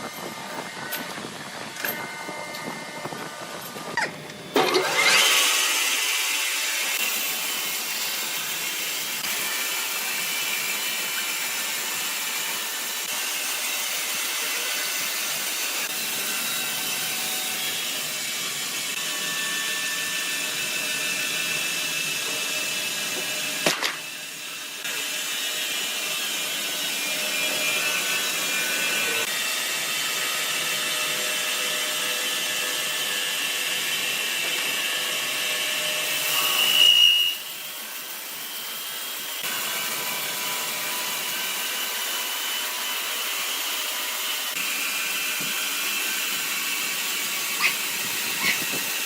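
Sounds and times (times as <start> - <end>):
sawmill machinery running: 0.0 - 49.0.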